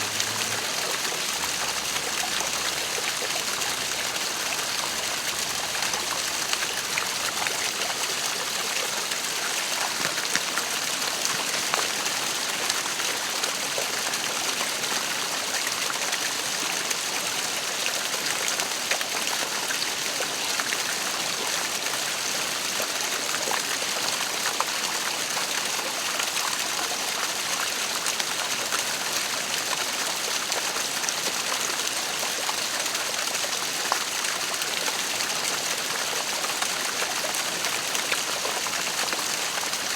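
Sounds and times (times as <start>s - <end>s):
waterfall rushing: 0.0s - 13.7s.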